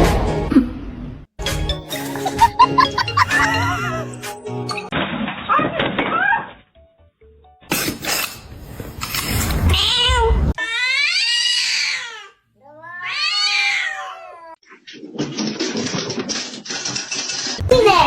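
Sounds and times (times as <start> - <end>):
cat meowing: 9.8 - 14.6
noisy clatter: 14.9 - 17.8.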